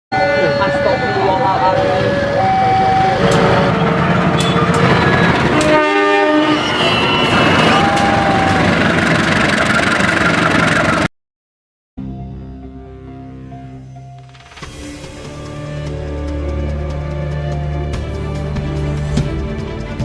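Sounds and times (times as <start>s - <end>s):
train rumbling and rattling: 0.7s - 11.1s
train horn blast: 5.4s - 7.8s
music: 12.0s - 20.0s.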